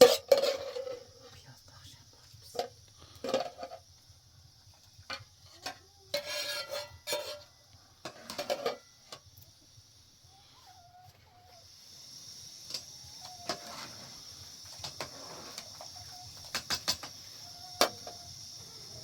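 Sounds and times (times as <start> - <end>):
dishes and utensils clinking: 0.0 - 1.1, 5.1 - 8.8.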